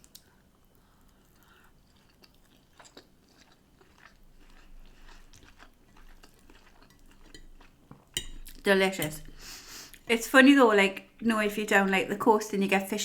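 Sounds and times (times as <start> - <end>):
person chewing food: 0.0 - 8.6.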